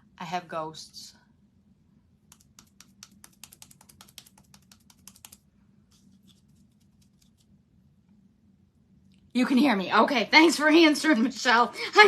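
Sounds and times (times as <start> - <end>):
typing on computer keyboard: 2.3 - 5.4.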